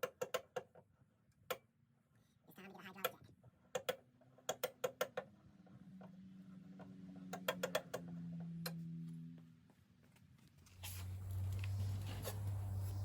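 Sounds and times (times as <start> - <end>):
car jack metallic clicks: 7.3 - 8.1
low steady hum: 10.4 - 13.0.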